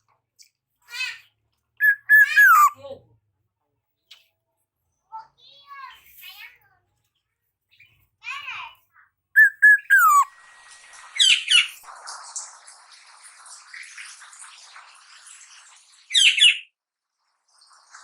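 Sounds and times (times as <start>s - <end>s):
bird whistling note: 1.8s - 2.7s, 9.4s - 10.3s
bird harsh squawks: 1.8s - 2.8s, 9.4s - 10.3s
bird scratchy chirps: 1.8s - 2.8s, 9.4s - 10.3s.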